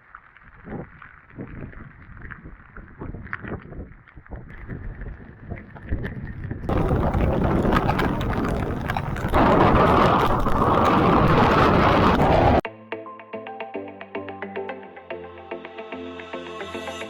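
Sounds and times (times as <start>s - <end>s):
wind noise on microphone: 0.3s - 12.6s
heavy rain: 6.7s - 12.6s.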